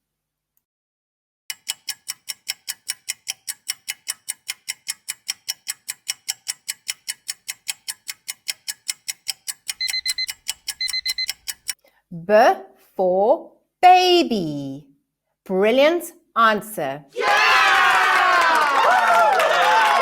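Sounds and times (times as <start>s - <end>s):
fast clock ticking: 1.5s - 11.8s.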